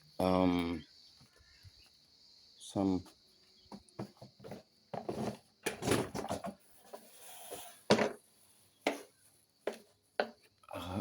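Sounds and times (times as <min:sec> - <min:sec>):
knocks and clatters of objects: 0:03.6 - 0:07.1, 0:07.9 - 0:08.2, 0:08.8 - 0:09.1, 0:09.7 - 0:10.5.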